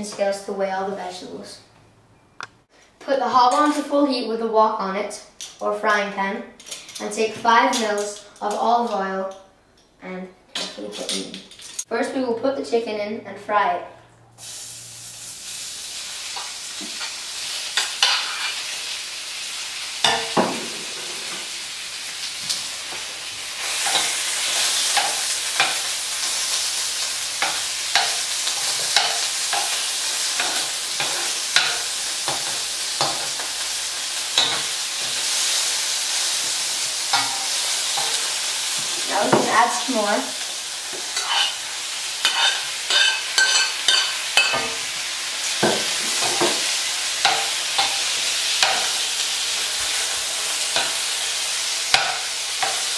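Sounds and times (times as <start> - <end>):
chicken sizzling in oil: 14.4 - 52.9
utensil clinking and scraping pan: 41.2 - 41.6, 42.2 - 44.8.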